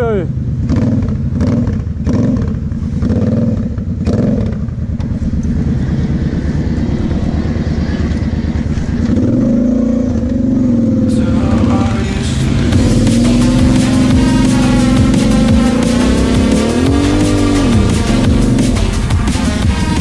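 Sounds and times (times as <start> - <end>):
quad engine running hard: 0.0 - 20.0.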